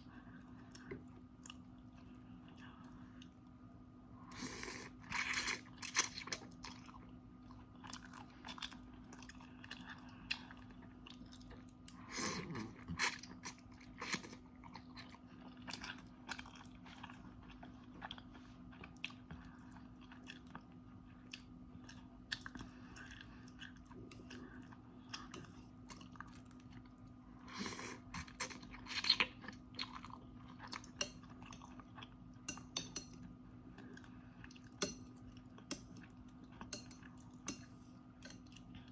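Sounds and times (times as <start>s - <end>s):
chewing noodles: 4.3s - 32.7s.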